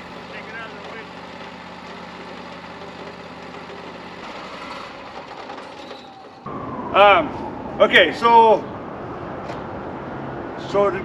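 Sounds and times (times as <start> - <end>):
engine idling: 0.0 - 5.9.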